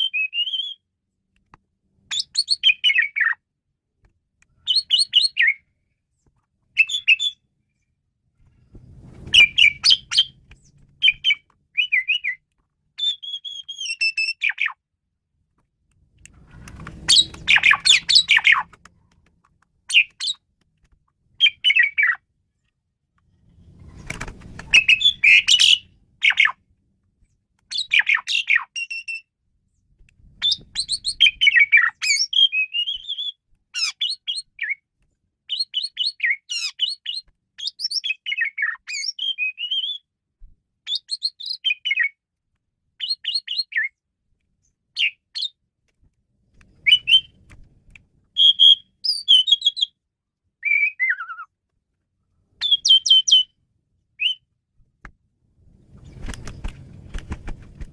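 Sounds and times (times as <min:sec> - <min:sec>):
starling singing: 0:11.0 - 0:12.4, 0:17.1 - 0:18.7, 0:24.7 - 0:26.6.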